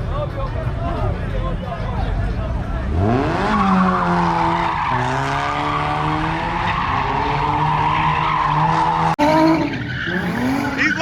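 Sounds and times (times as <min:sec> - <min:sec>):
car engine at high revs: 0:02.8 - 0:11.0
tyres squealing and skidding: 0:03.3 - 0:11.0.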